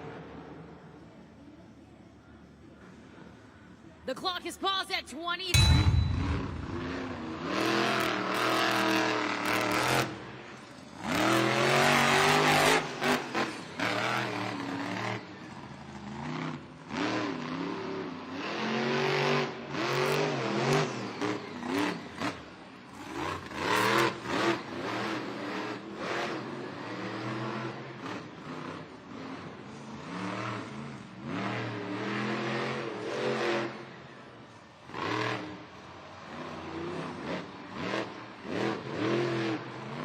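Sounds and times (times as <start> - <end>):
sharp knocks and bangs: 5.6 - 7.5.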